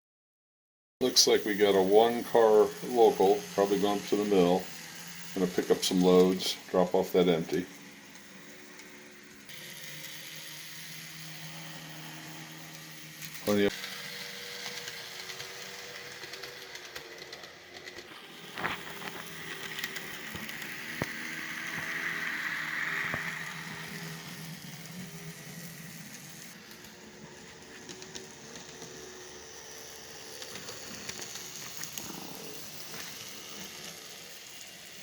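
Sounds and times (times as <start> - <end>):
diesel locomotive engine hum: 1.0 - 35.0
hiss: 18.1 - 35.0.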